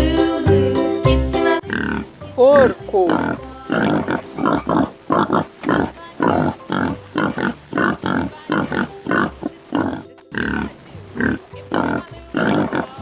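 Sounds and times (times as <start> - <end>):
pigs grunting: 1.6 - 9.4.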